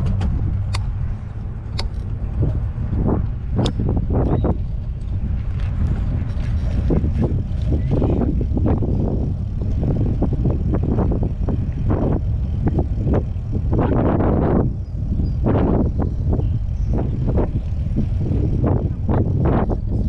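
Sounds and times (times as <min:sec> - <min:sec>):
bicycle tyre and road noise: 0:00.0 - 0:20.0
wind buffeting microphone: 0:00.0 - 0:20.0.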